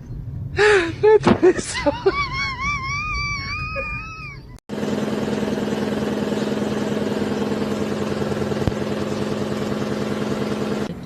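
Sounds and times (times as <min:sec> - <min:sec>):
vehicle engine humming: 0:04.7 - 0:11.0.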